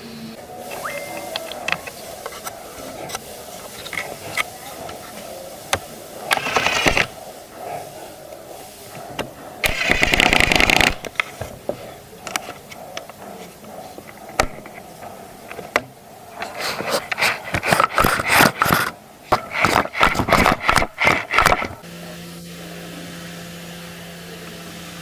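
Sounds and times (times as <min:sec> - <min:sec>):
scraping on wood: 0:11.0 - 0:21.8
clicks and knocks on wood: 0:15.5 - 0:21.8.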